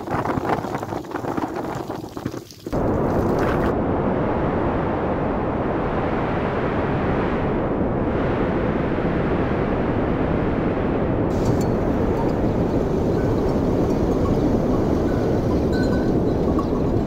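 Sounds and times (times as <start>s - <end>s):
strong wind on microphone: 0.0s - 17.0s.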